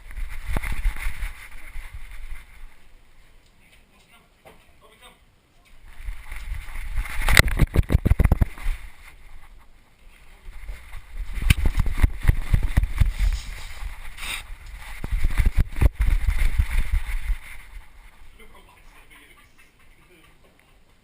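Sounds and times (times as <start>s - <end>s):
camera knocking and rubbing: 5.9s - 9.7s, 10.5s - 18.0s.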